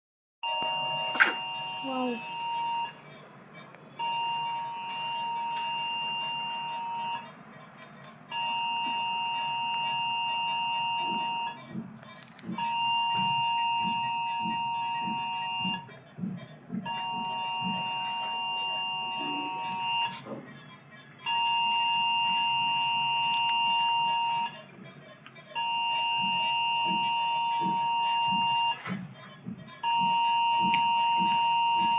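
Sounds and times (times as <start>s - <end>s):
electronic alarm long beeps: 0.4s - 3.0s, 4.0s - 7.3s, 8.4s - 11.6s, 12.6s - 15.9s, 16.9s - 20.2s, 21.3s - 24.6s, 25.6s - 28.8s, 29.8s - 31.9s.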